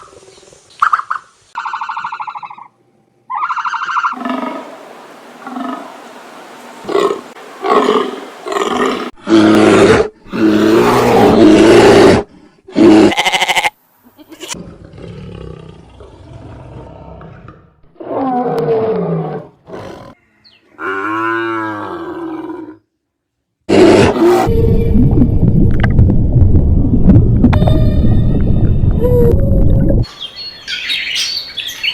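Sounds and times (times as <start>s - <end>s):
animal roars and calls: 3.3s - 6.1s, 6.8s - 13.5s, 14.5s - 22.9s, 23.7s - 25.4s.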